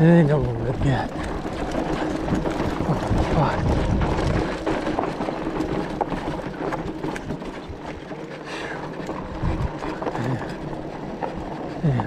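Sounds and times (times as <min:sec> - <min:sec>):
bike knocks and rattles: 0:00.0 - 0:12.0
wind noise on microphone: 0:02.3 - 0:05.6, 0:09.3 - 0:10.0.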